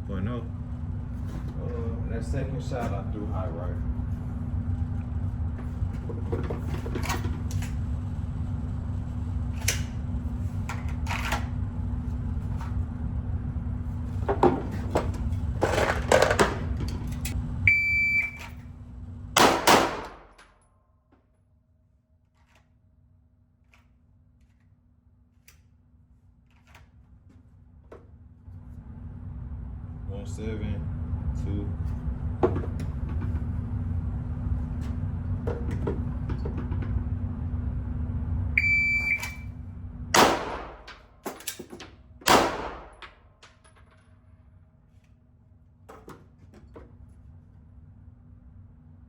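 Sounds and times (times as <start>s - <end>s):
low rumble: 0.0s - 10.8s, 28.2s - 41.2s
shot timer beep: 17.7s - 18.4s, 38.6s - 39.5s
pistol shots: 19.4s - 20.3s, 40.2s - 40.9s, 42.3s - 43.0s.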